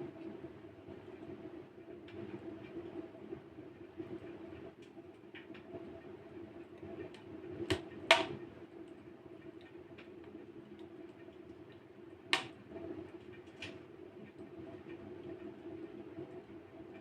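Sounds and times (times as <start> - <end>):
wood fire crackling: 3.6 - 17.0.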